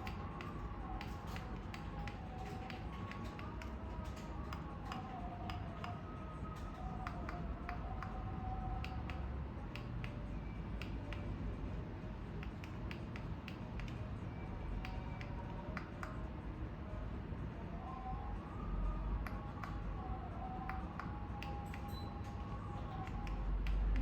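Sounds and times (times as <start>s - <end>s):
faint wavering whistling tones: 17.5s - 23.9s.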